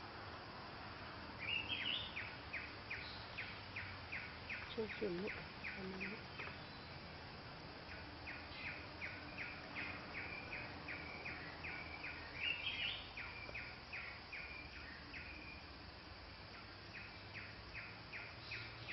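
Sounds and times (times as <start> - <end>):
woodpecker calling: 1.4 - 7.0, 7.8 - 15.6.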